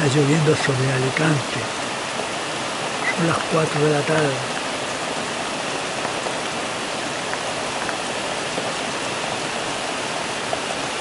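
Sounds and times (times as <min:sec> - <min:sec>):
rain drop ticks: 0:00.0 - 0:06.6, 0:07.2 - 0:08.8
rain falling steadily: 0:00.0 - 0:11.0.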